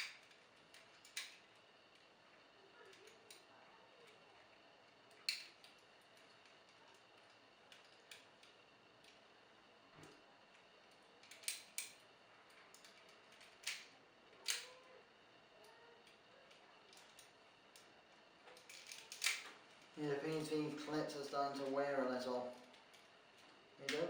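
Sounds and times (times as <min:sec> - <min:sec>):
plastic toy parts clicking: 0:00.0 - 0:02.0, 0:05.1 - 0:09.2, 0:10.9 - 0:14.8, 0:16.0 - 0:17.9, 0:18.5 - 0:19.5.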